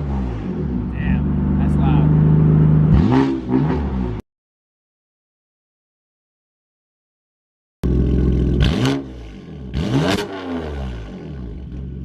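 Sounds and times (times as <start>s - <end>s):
car engine revving loudly: 0.0s - 4.2s, 7.8s - 11.7s.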